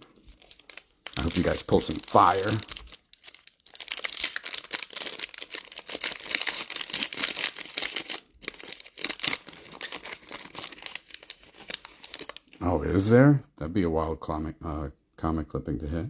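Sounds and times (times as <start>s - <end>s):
foil wrapper crinkling and tearing: 0.0s - 12.6s.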